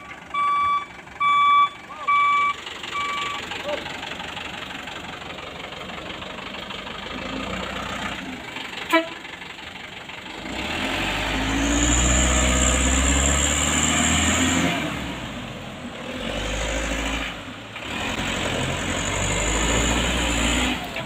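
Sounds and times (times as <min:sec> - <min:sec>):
vehicle engine revving hard: 0:10.3 - 0:21.0.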